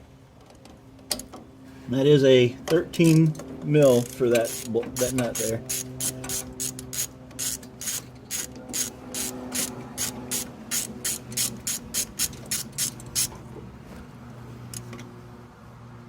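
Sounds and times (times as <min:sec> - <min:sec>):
ratchet wrench clicking: 0:03.9 - 0:13.3.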